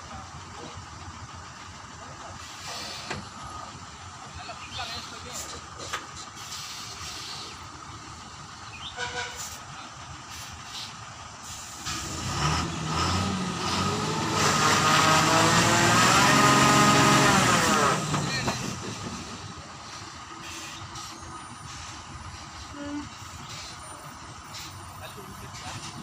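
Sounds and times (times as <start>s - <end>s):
lorry engine revving: 11.8s - 20.0s.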